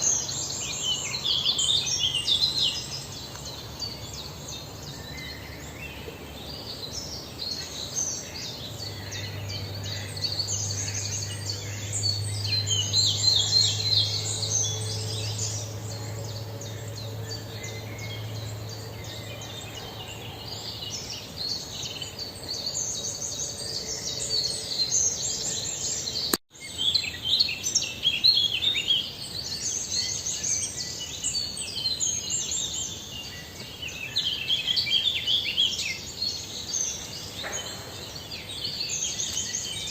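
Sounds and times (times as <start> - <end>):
low steady hum: 0.0 - 26.3
small birds chirping: 0.0 - 39.9.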